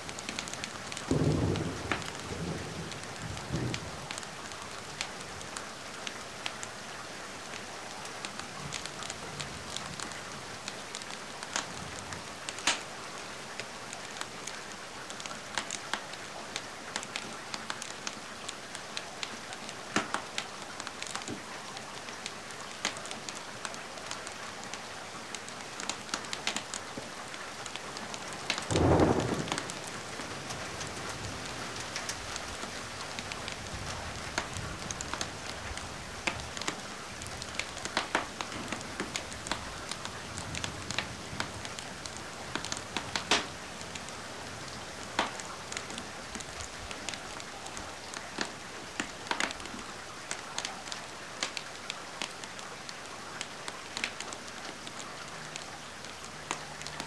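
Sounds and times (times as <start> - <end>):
steady rain: 0.0 - 57.0
wood fire crackling and popping: 0.1 - 4.3, 8.2 - 12.9, 25.3 - 26.8, 27.7 - 44.1, 45.1 - 52.4, 53.4 - 54.8.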